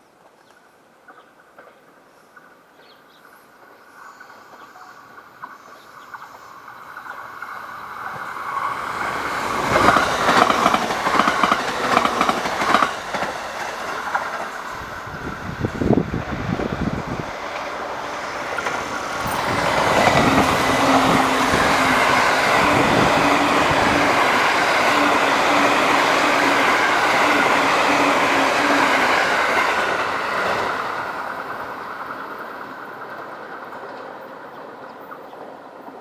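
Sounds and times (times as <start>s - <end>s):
train wheels clattering over rail joints: 7.0s - 32.4s.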